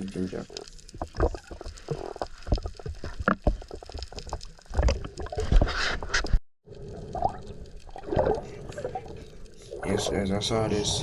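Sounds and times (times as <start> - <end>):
sea water sloshing: 6.8 - 11.0.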